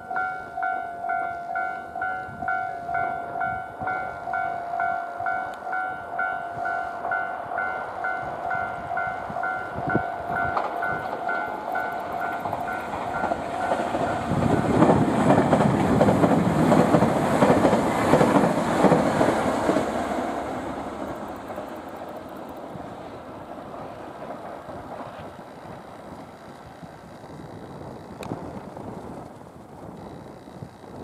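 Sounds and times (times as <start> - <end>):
level crossing bell ringing: 0.0 - 14.2
electric train passing: 0.0 - 31.0.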